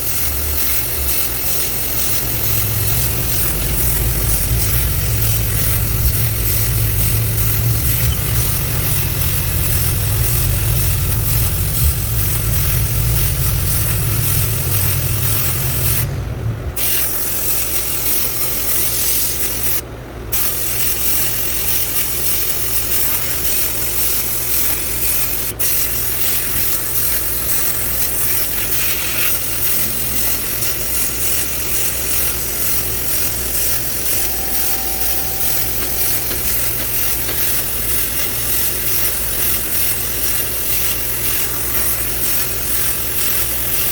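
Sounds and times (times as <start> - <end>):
sandblasting gun hissing: 0.0 - 43.9
low hum: 1.4 - 17.9, 33.0 - 38.4.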